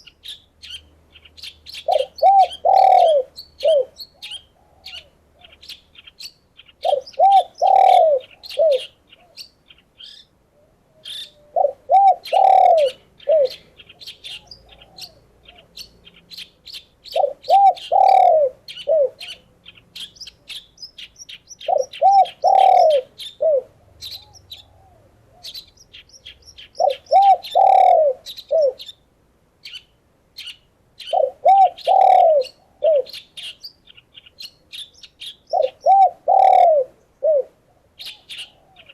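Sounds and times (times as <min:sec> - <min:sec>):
small birds chirping: 0:00.0 - 0:38.9
dove cooing: 0:01.7 - 0:05.8, 0:06.8 - 0:09.4, 0:10.5 - 0:15.9, 0:17.0 - 0:20.6, 0:21.6 - 0:25.7, 0:26.6 - 0:28.8, 0:31.0 - 0:33.6, 0:35.5 - 0:38.9.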